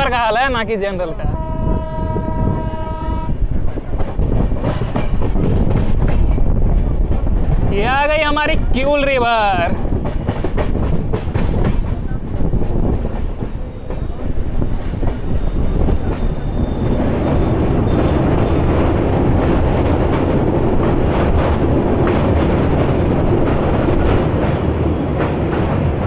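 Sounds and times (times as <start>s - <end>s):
train rumbling on steel bridge: 0.0s - 26.0s
train wheels clacking over rails: 3.4s - 7.7s, 9.7s - 26.0s.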